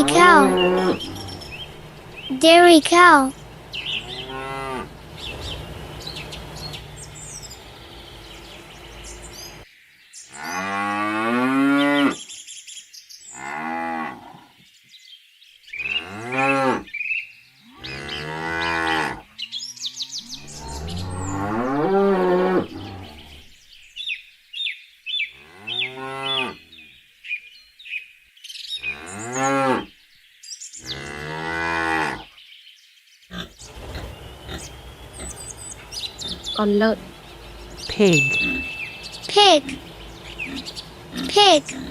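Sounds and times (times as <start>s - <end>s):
cows mooing: 0.0s - 2.3s, 3.4s - 7.5s, 17.8s - 23.4s, 25.4s - 26.6s, 33.3s - 41.9s.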